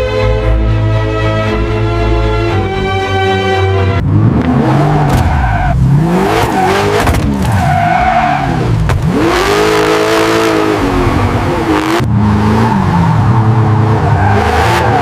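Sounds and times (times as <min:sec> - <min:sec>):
car engine revving: 0:03.9 - 0:15.0
tyres squealing: 0:04.6 - 0:09.9.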